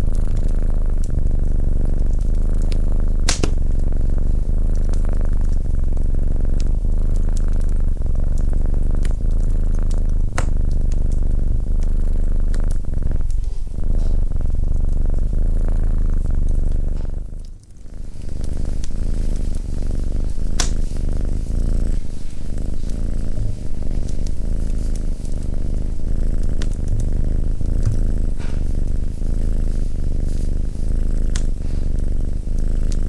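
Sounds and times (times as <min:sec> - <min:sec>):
cat purring: 0:00.0 - 0:33.0
sharp clicks: 0:03.2 - 0:03.6, 0:20.5 - 0:20.7.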